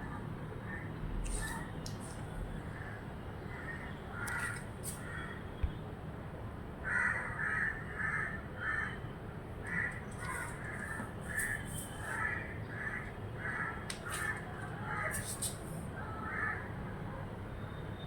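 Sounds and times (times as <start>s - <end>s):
crow cawing: 2.7s - 5.4s, 6.8s - 9.0s, 9.6s - 15.1s, 16.1s - 16.7s.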